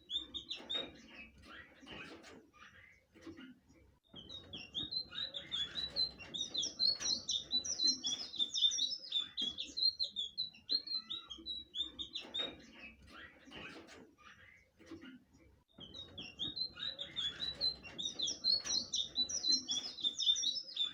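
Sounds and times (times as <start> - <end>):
flycatcher singing: 4.6 - 12.3, 16.0 - 20.9.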